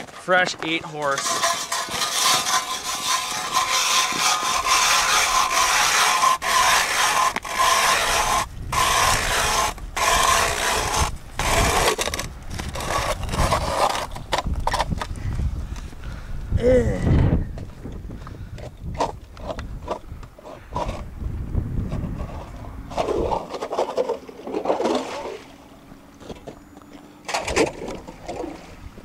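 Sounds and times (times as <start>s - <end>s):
ice auger scraping ice: 0.7s - 15.1s, 18.6s - 21.1s, 21.9s - 25.4s.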